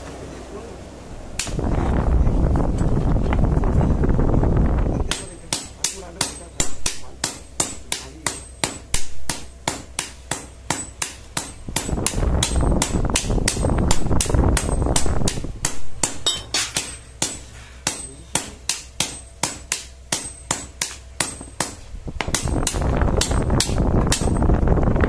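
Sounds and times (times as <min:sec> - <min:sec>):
hammer striking steel on anvil: 0:05.1 - 0:24.4.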